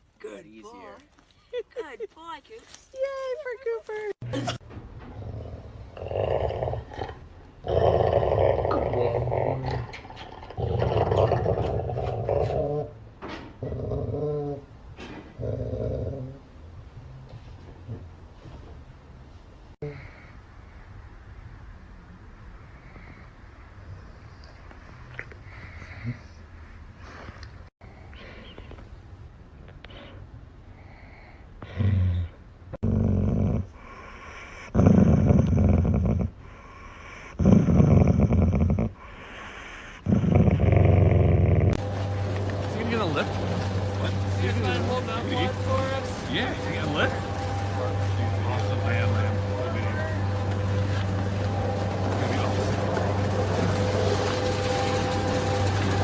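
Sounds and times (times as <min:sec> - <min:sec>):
dog growling: 0:05.1 - 0:13.0, 0:13.6 - 0:14.7, 0:15.4 - 0:16.5, 0:31.7 - 0:34.0, 0:34.6 - 0:36.5, 0:37.4 - 0:41.8.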